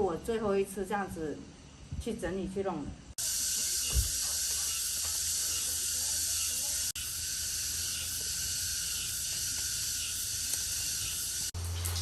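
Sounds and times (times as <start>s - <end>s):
steady high hiss: 3.2s - 12.0s.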